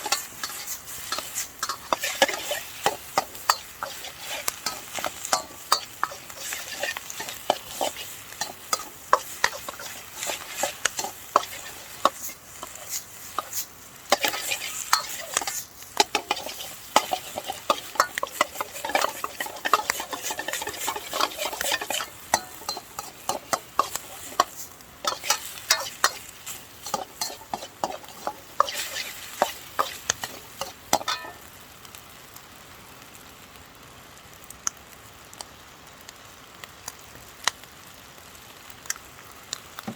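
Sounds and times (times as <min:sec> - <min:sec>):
metal utensil scraping wok: 0:00.0 - 0:31.5
rice sizzling: 0:00.0 - 0:39.9.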